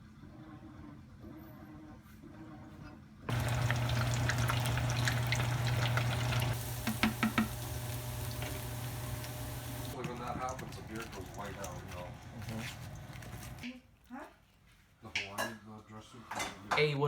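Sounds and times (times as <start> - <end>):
food sizzling in hot oil: 3.3 - 13.6
oil popping: 3.3 - 13.6.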